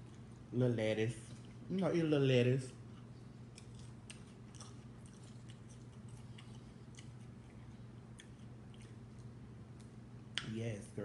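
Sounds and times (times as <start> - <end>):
mouth chewing food: 0.0 - 0.5, 2.7 - 10.4
steady low hum: 0.0 - 11.0.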